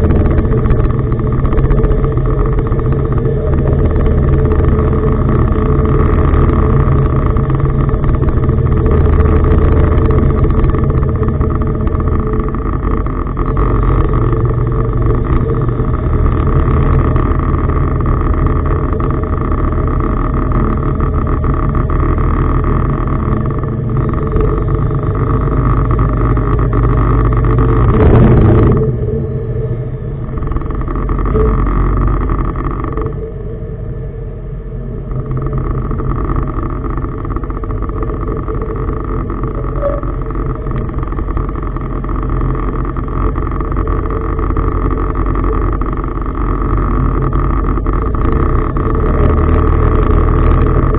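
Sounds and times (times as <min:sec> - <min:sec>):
diesel engine humming: 0:00.0 - 0:50.9
loud rush of noise: 0:00.0 - 0:50.9.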